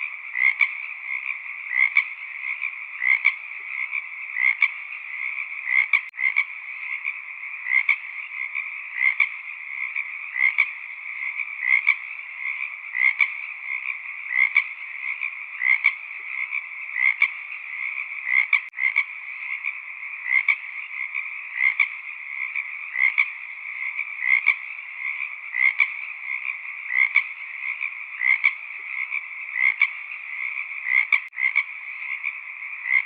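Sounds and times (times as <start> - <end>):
frog chorus: 0.0 - 33.0
loud frog call: 0.0 - 33.0.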